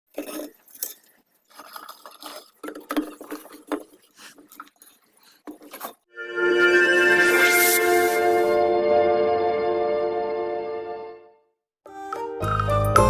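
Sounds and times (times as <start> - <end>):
objects knocking and scraping: 0.1 - 6.1.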